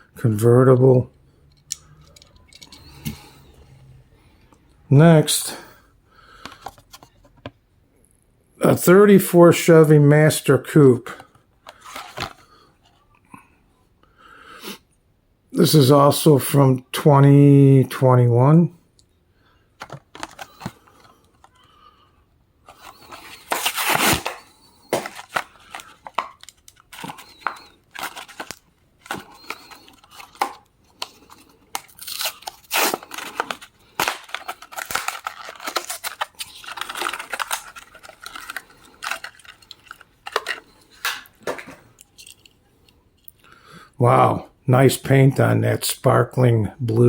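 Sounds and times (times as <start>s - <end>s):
packaging crinkling: 19.8s - 21.6s, 22.7s - 42.5s
blister packaging being torn open: 22.7s - 41.2s.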